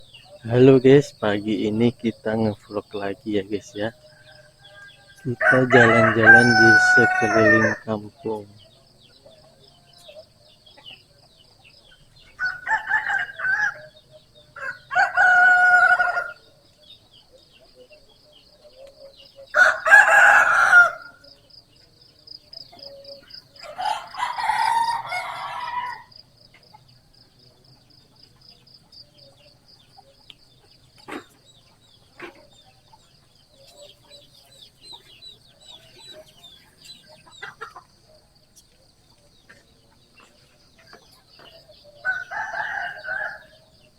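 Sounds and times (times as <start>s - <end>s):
roosters crowing: 0.0s - 8.4s, 11.9s - 16.6s, 19.4s - 21.4s, 22.2s - 27.4s, 39.3s - 43.9s.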